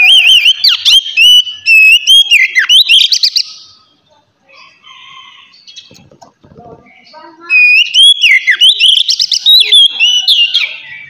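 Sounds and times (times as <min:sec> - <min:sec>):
bird singing whistled song: 0:00.0 - 0:03.8, 0:07.4 - 0:11.0.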